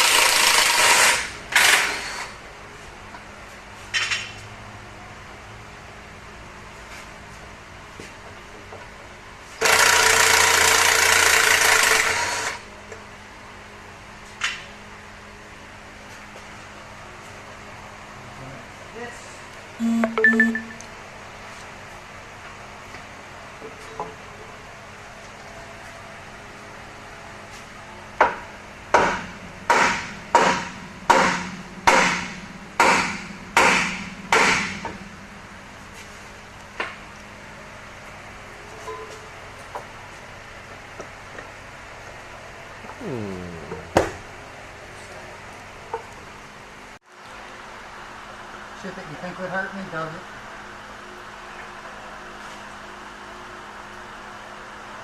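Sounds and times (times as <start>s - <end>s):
pneumatic air tool running: 0.0s - 2.4s, 9.6s - 12.6s.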